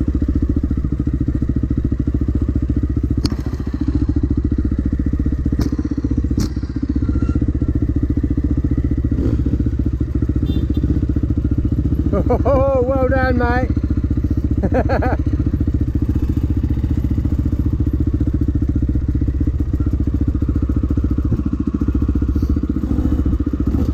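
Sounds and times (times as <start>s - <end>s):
dirt bike engine running: 0.0s - 23.9s.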